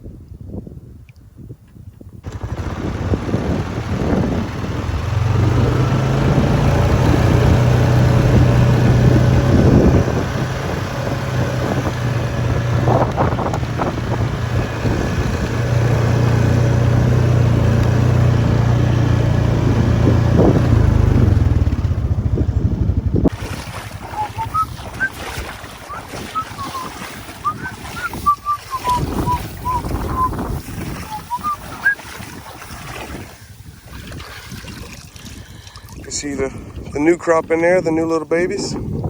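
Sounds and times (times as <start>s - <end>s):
wind buffeting microphone: 0.0s - 39.0s
vehicle engine running: 2.2s - 32.0s.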